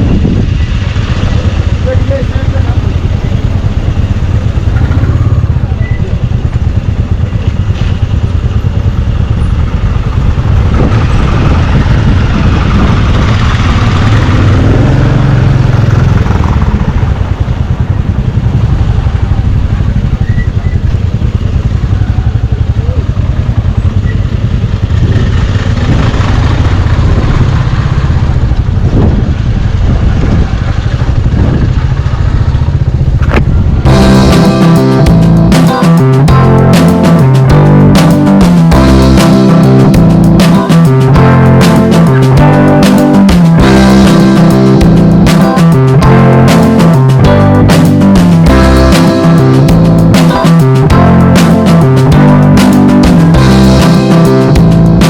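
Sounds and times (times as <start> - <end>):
wind on microphone: 0.0 - 1.8, 9.2 - 21.4, 24.8 - 34.2
motorcycle engine running: 0.0 - 55.0.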